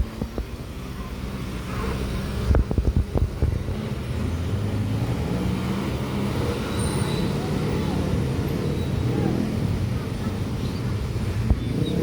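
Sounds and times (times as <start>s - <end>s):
truck diesel engine passing: 3.6s - 12.0s.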